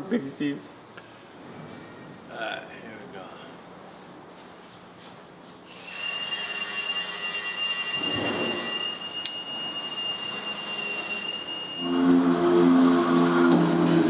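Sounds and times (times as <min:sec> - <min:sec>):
drill bit squealing on steel: 0:05.7 - 0:12.4.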